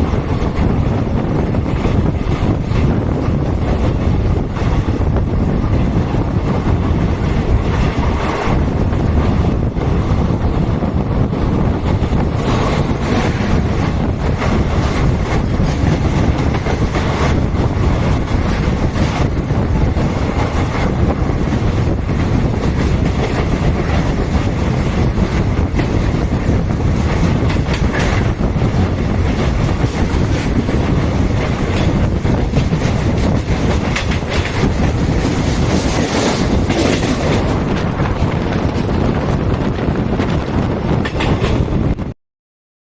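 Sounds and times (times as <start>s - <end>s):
train rumbling along track: 0.0s - 42.2s
wheels clicking over rail joints: 21.6s - 41.9s.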